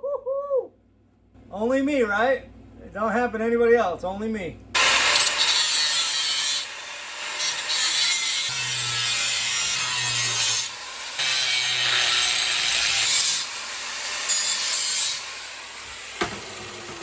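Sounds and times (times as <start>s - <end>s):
power tool working on steel: 4.8s - 17.0s.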